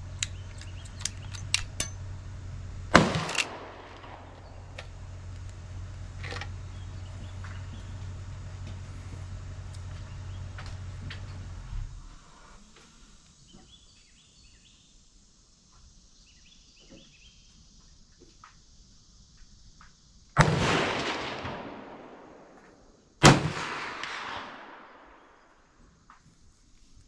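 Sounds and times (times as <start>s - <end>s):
gunshots with echo: 2.9s - 4.4s, 23.2s - 25.3s.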